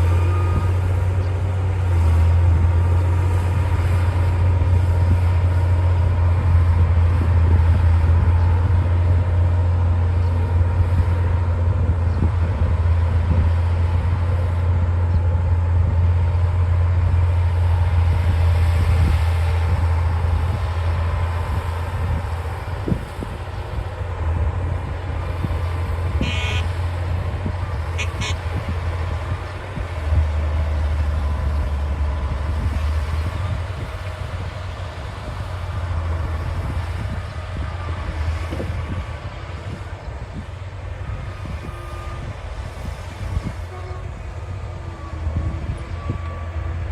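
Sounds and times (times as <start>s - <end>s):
bulldozer diesel engine droning: 0.0s - 46.9s
short high-pitched squeaks: 26.2s - 26.7s, 28.0s - 28.4s.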